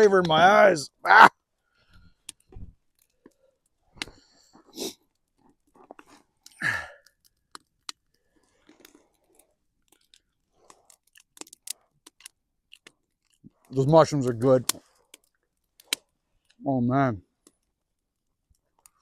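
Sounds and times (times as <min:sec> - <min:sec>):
person chewing: 0:04.8 - 0:13.5.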